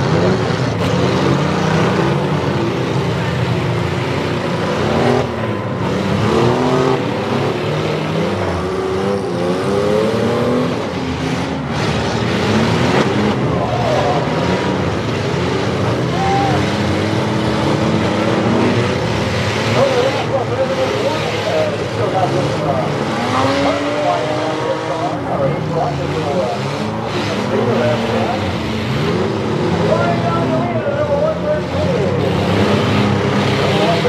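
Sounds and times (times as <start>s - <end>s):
engines revving: 0.0s - 34.0s.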